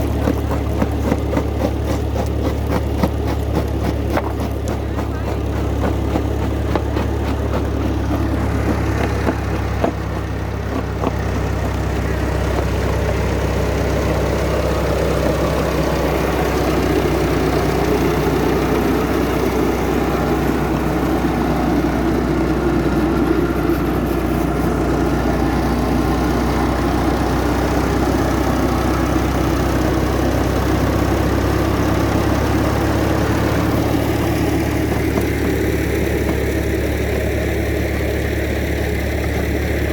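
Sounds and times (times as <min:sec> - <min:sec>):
rock crusher clattering knocks: 0:00.0 - 0:11.8, 0:34.7 - 0:36.6
old tractor engine running: 0:00.0 - 0:39.9.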